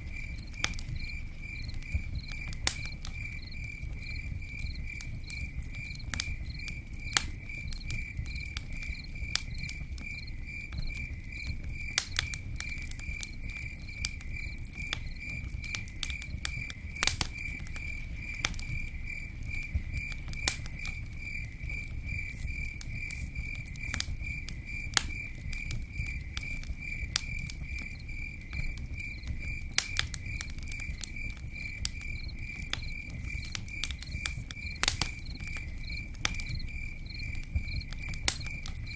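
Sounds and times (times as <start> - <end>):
insect chirping: 0.0 - 11.9, 12.6 - 38.9
campfire crackling and popping: 0.0 - 38.9.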